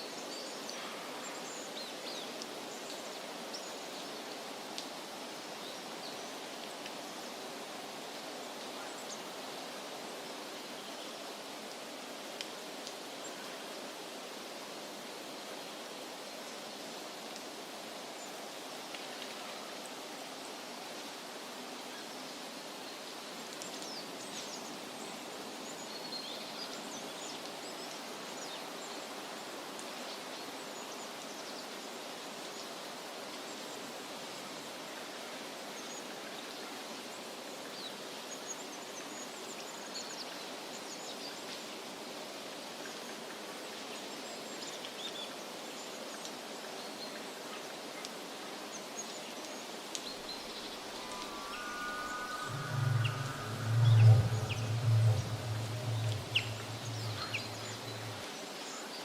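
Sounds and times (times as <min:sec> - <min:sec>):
high bird chirps: 0:50.4 - 0:58.2
steady rushing background: 0:52.2 - 0:58.2.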